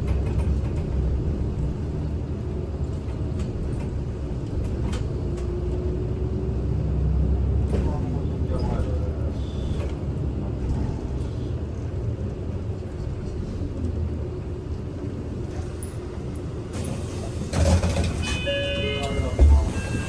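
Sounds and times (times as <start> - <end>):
bus engine hum: 0.0 - 20.0
road rumble: 0.0 - 20.0
short high tones: 18.2 - 20.0.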